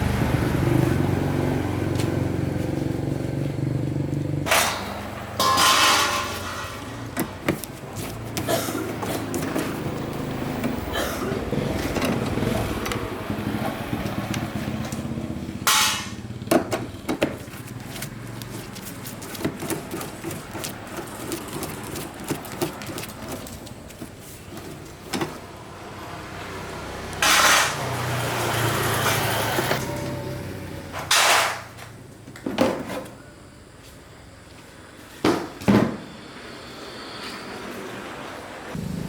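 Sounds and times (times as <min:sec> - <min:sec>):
knocks and clatter: 0:04.4 - 0:10.8
small motorbike engine running: 0:09.2 - 0:23.6, 0:38.7 - 0:39.0.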